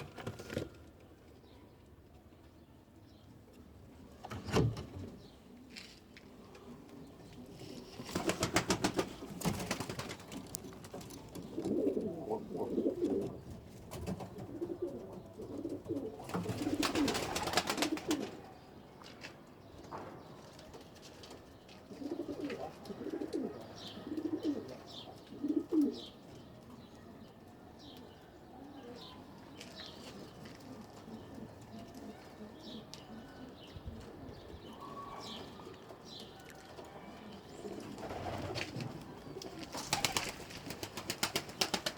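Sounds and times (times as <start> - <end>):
wings fluttering: 8.0 - 11.0, 38.0 - 41.9
pigeons cooing: 11.3 - 13.6, 14.3 - 18.4, 21.9 - 26.1.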